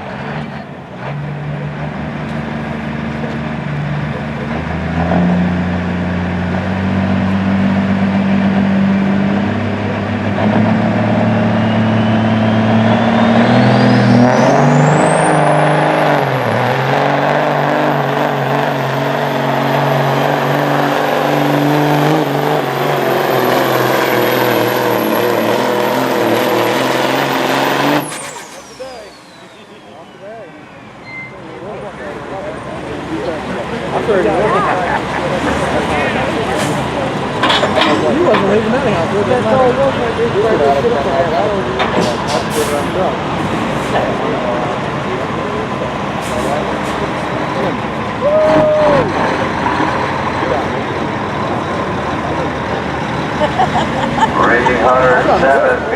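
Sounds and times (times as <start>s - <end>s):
truck engine working under load: 0.0s - 55.9s
high whistle: 11.6s - 14.2s, 28.1s - 31.4s.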